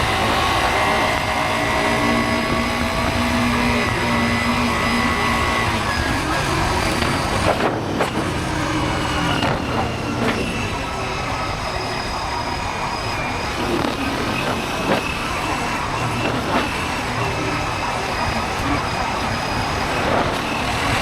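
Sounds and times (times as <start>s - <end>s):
motorcycle engine running: 0.0s - 10.8s
wind and road noise: 0.0s - 21.0s.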